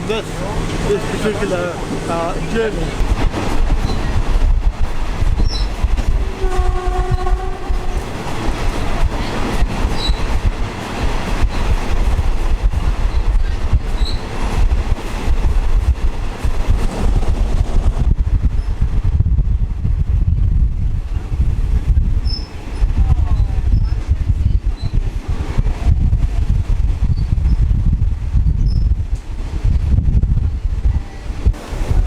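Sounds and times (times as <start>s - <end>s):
train rumbling along track: 0.0s - 32.0s
train horn: 6.2s - 8.1s.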